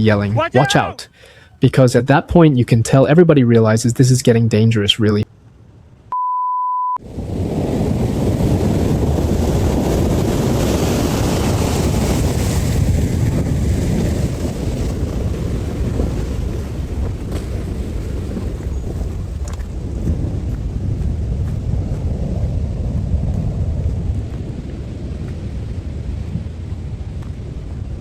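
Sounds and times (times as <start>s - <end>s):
short high beep: 6.1s - 7.0s
storm wind buffeting microphone: 7.0s - 28.0s.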